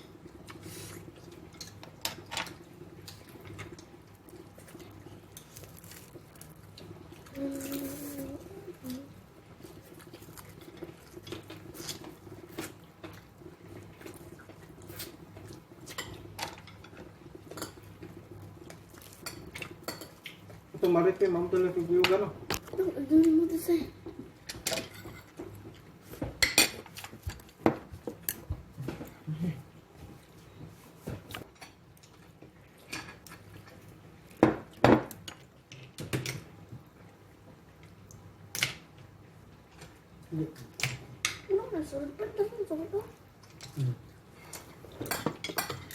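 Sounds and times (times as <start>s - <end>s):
person chewing and smacking: 3.1s - 7.3s
dishes and cutlery clinking: 24.5s - 29.1s, 44.5s - 45.9s.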